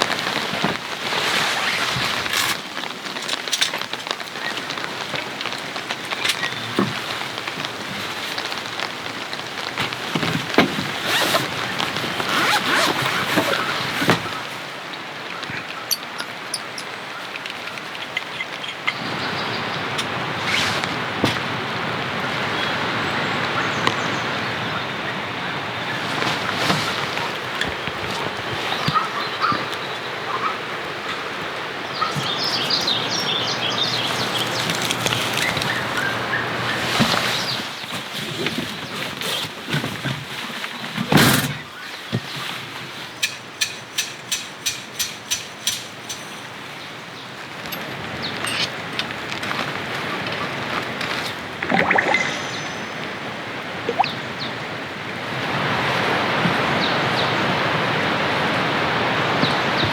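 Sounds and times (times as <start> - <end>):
rain falling: 0.0 - 41.1, 46.1 - 59.9
handling clicks and knocks: 15.2 - 19.0
bird chirping: 51.7 - 53.3.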